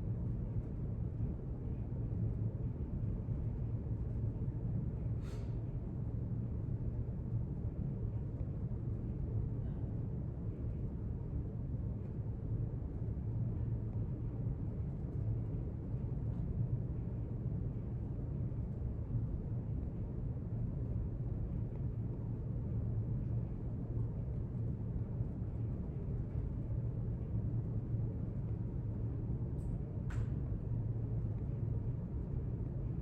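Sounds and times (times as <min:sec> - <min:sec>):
low rumble of room ambience: 0:00.0 - 0:33.0
faint click: 0:29.6 - 0:30.4.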